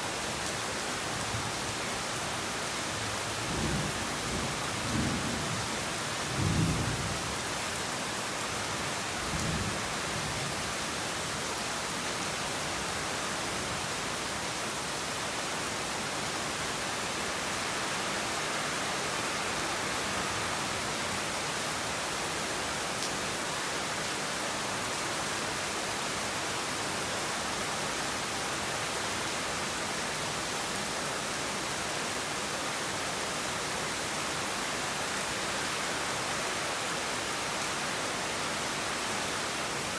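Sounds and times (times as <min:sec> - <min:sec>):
heavy rain falling: 0:00.0 - 0:39.9
low rumble of thunder: 0:03.5 - 0:07.4.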